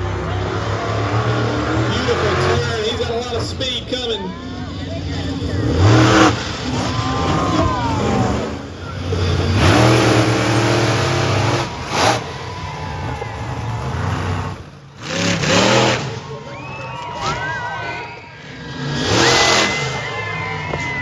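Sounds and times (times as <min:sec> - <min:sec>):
truck engine revving: 0:00.0 - 0:21.0
loud bursts of noise: 0:05.3 - 0:16.5, 0:18.4 - 0:21.0.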